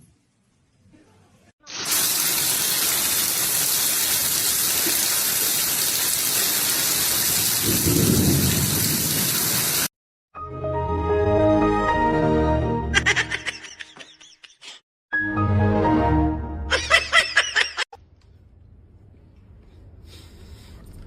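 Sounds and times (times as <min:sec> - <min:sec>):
falling water hissing: 0:01.6 - 0:09.9.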